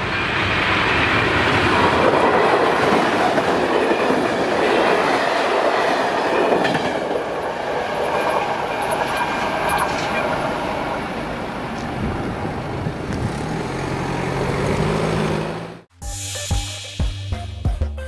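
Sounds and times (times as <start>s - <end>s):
passenger train rumble: 0.0s - 15.9s
car engine approaching: 12.4s - 15.9s.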